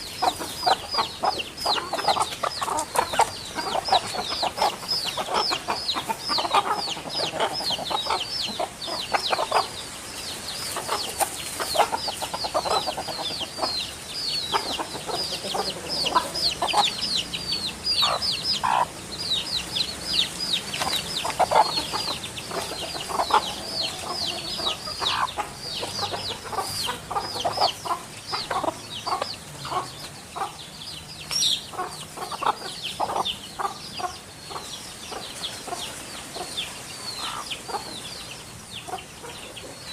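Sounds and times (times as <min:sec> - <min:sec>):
low bird clucking: 0:00.0 - 0:39.9.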